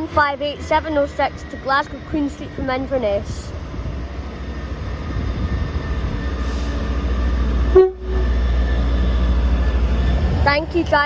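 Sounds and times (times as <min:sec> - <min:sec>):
diesel train rumbling: 0:00.0 - 0:11.0
train horn beep: 0:07.7 - 0:08.4.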